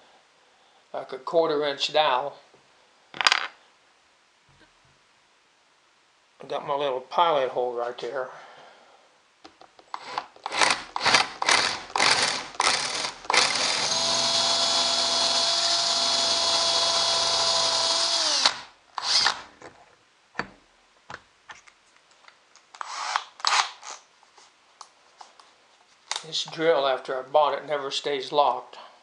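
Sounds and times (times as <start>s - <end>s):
electric drill whining: 9.9s - 19.5s.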